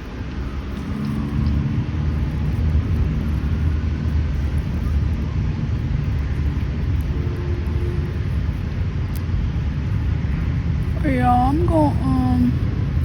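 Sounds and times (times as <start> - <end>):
passing traffic engine rumble: 0.0 - 13.0.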